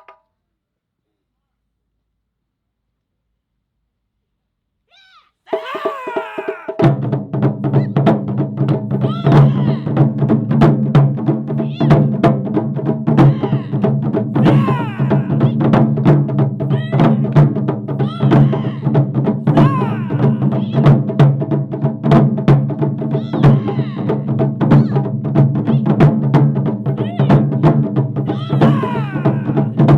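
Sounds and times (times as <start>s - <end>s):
taiko drums: 5.5s - 29.9s
sliding pitched calls: 14.4s - 15.7s, 18.0s - 21.0s, 28.3s - 29.9s.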